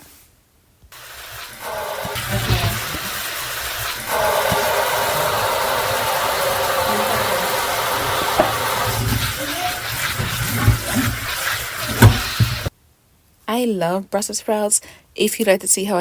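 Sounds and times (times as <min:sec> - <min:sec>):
blender motor running: 0:01.1 - 0:12.7.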